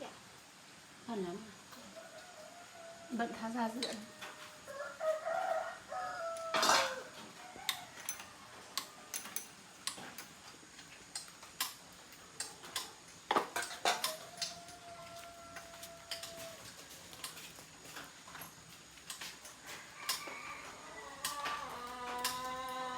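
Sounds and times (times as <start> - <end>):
metal tools clinking: 6.6 - 7.0, 8.0 - 8.3, 9.1 - 10.4.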